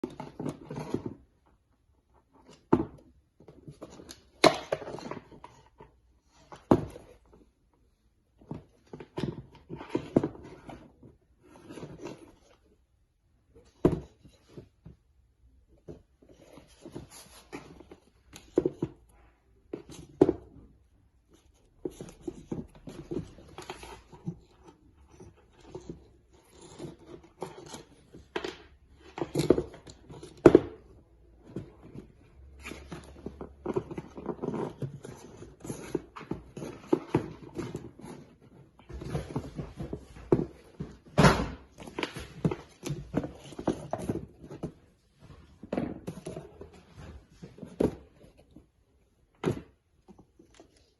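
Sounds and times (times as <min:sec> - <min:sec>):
sneakers handling knocks and rustling: 0:29.2 - 0:48.2.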